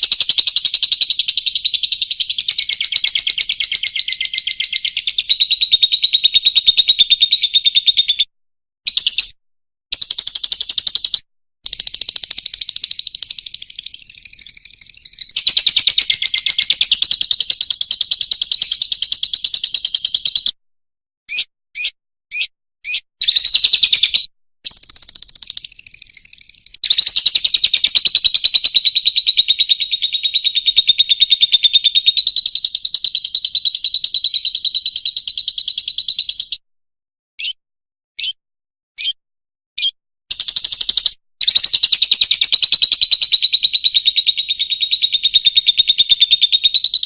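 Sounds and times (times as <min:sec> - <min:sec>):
lovebird chattering warble: 0:00.0 - 0:05.4, 0:09.9 - 0:19.8
bird short chirps: 0:08.9 - 0:20.6, 0:21.3 - 0:36.6, 0:37.4 - 0:37.6, 0:38.2 - 0:38.4, 0:39.0 - 0:39.2, 0:39.8 - 0:47.0.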